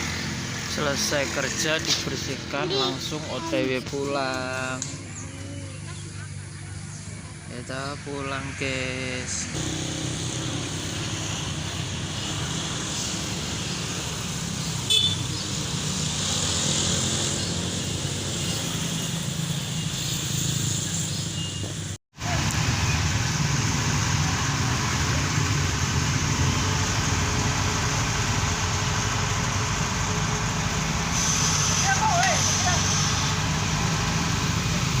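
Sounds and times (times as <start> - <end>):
vehicle engine running: 0.0 - 8.0, 22.2 - 35.0
road noise: 0.0 - 35.0.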